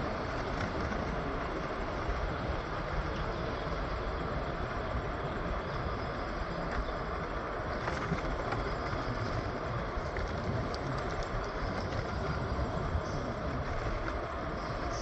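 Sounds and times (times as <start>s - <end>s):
train wheels rumbling on rails: 0.0s - 15.0s
faint ticks: 5.9s - 15.0s.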